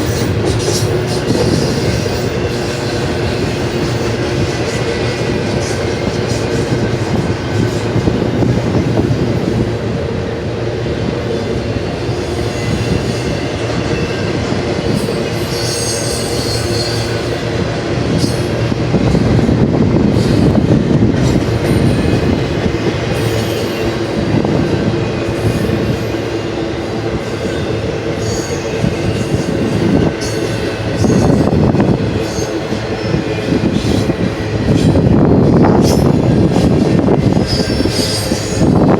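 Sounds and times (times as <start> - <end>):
freight train wheels rumbling: 0.0 - 38.9
high wheel squeals: 12.3 - 17.5, 27.2 - 31.6, 37.3 - 38.8.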